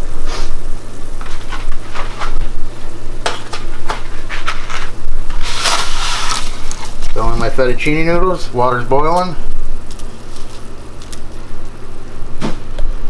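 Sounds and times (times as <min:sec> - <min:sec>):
steady low hum: 0:00.0 - 0:13.0
short hiss: 0:00.2 - 0:00.7.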